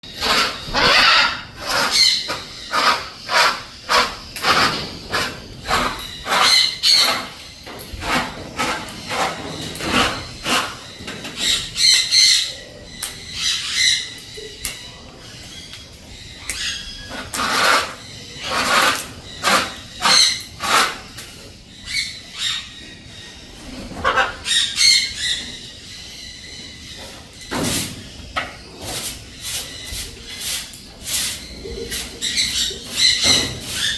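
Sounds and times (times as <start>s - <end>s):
macaw squawking: 0.2s - 4.7s.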